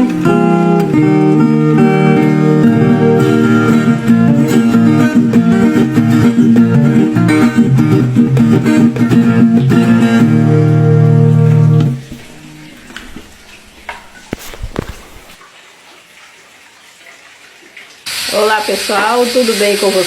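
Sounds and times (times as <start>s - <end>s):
plucked guitar music: 0.0s - 14.4s.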